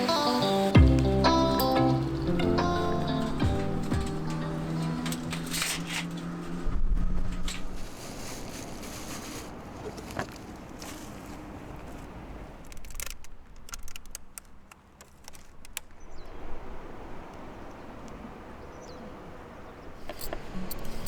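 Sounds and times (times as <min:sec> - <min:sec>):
steady hiss: 0:00.0 - 0:06.1.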